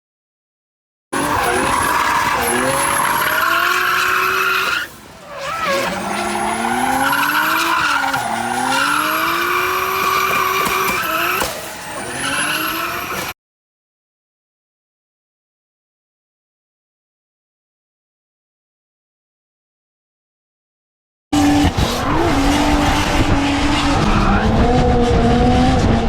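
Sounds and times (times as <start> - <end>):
tyres screeching: 1.2 - 13.3
car engine revving hard: 1.2 - 13.4, 21.4 - 26.0.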